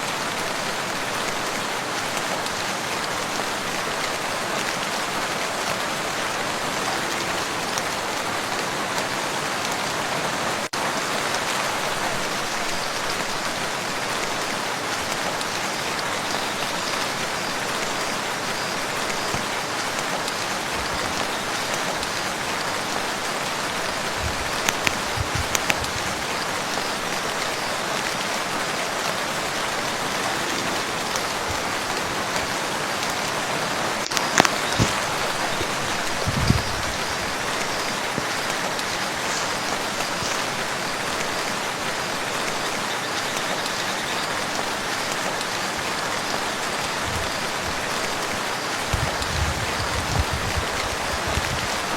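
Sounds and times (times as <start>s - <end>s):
rain falling on water: 0.0s - 51.9s
heavy drips splashing: 10.7s - 42.7s.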